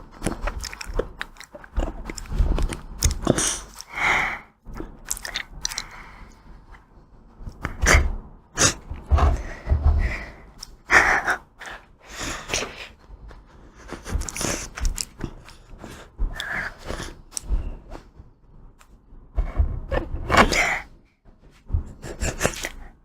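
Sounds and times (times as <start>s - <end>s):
wet mouth noises and chewing: 0.0s - 4.1s, 4.7s - 6.4s, 10.2s - 18.0s.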